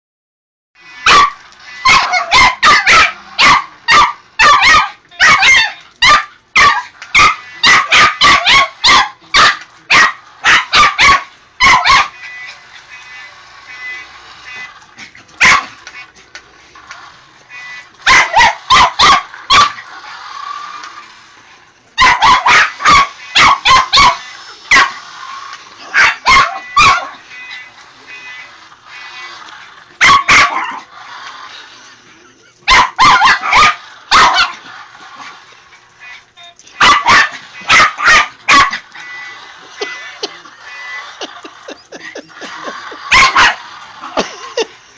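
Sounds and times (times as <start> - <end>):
dog barking: 1.0 - 12.2, 15.4 - 15.8, 18.0 - 19.9, 22.0 - 25.0, 25.9 - 27.2, 30.0 - 30.8, 32.7 - 34.6, 36.8 - 38.8, 43.1 - 43.6.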